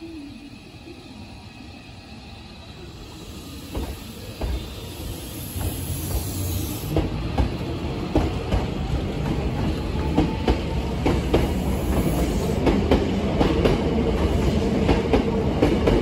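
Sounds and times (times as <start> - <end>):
high hiss: 0.0 - 7.2, 11.4 - 12.6
electric train rumble: 0.0 - 16.0.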